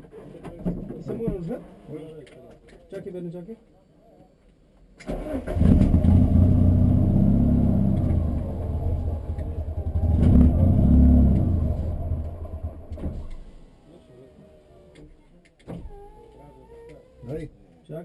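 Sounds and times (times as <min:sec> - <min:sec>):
rally car engine revving: 0:05.1 - 0:13.5.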